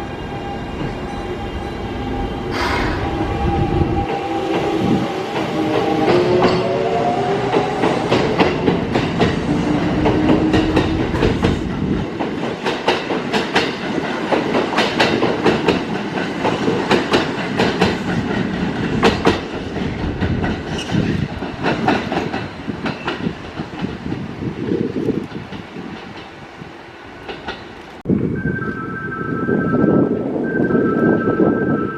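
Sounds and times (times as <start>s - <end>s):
train rumble: 0.0s - 31.8s
wheels clacking over rail joints: 5.4s - 24.3s.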